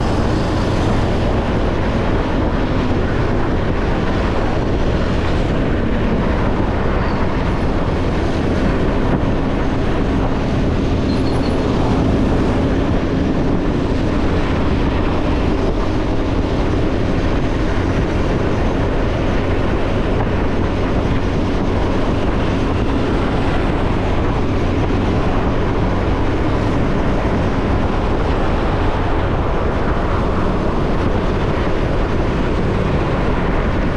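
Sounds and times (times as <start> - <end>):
motorcycle engine hum: 0.0 - 33.9
road noise rushing: 0.0 - 33.9.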